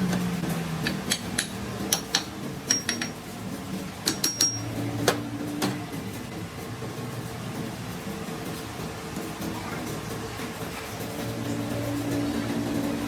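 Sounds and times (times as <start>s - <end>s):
metal tools clinking: 0.8s - 3.2s, 4.0s - 4.7s.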